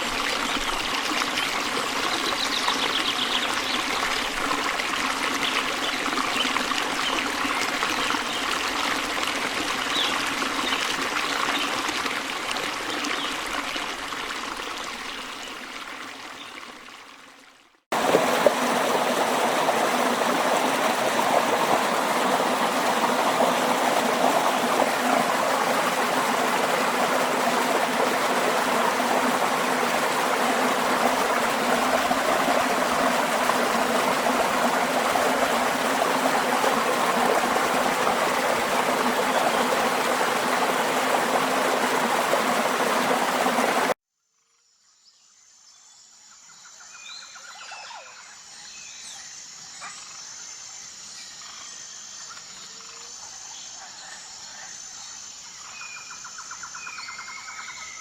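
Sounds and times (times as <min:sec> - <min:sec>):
stream water rushing: 0:00.0 - 0:15.0, 0:17.9 - 0:44.0.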